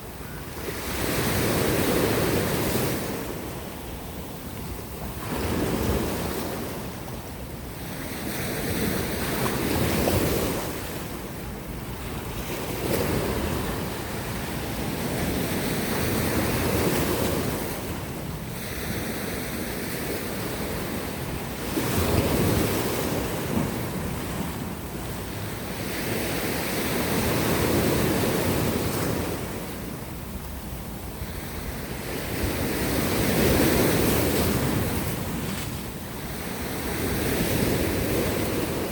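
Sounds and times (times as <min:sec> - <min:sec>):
sea waves breaking on rocks: 0:32.1 - 0:38.9.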